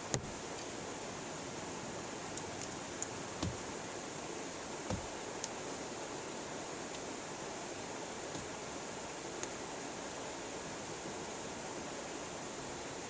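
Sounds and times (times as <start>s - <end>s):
flowing river: 0.0s - 13.0s
rain hiss: 0.0s - 13.0s
dull thumps: 3.4s - 3.7s, 4.9s - 5.2s.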